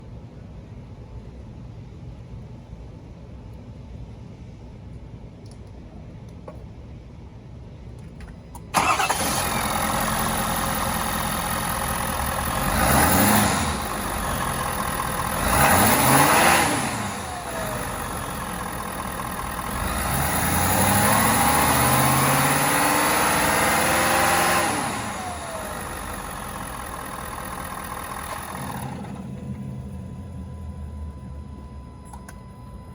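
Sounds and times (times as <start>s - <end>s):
pickup engine starting and revving: 8.8s - 30.8s.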